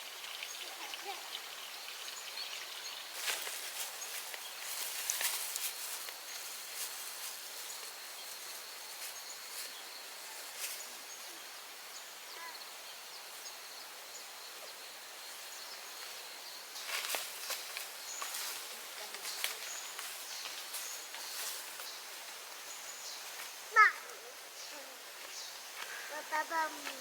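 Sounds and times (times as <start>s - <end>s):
soft background hiss: 0.0s - 27.0s
faint bird chirps: 9.2s - 27.0s.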